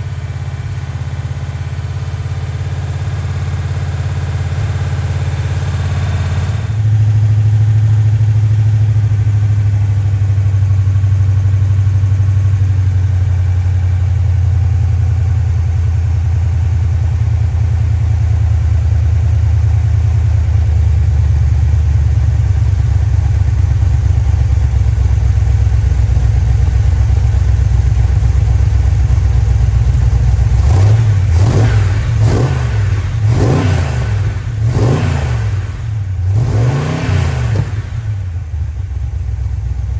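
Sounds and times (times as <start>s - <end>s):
engine running and revving: 4.2s - 7.5s, 28.4s - 38.8s.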